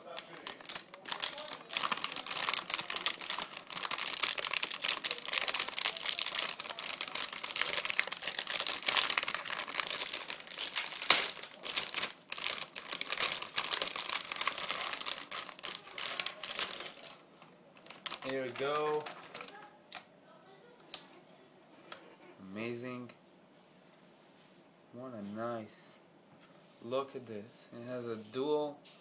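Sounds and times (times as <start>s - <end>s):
packaging crinkling: 0.0s - 20.1s.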